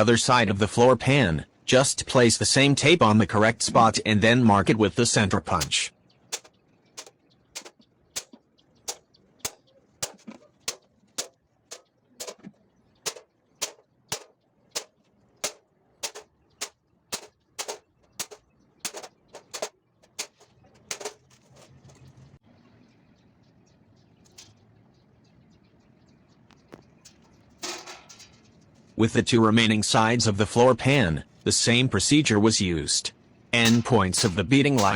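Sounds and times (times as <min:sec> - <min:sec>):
hammer tapping metal punch: 0:05.6 - 0:21.7, 0:27.1 - 0:28.4, 0:33.6 - 0:34.9.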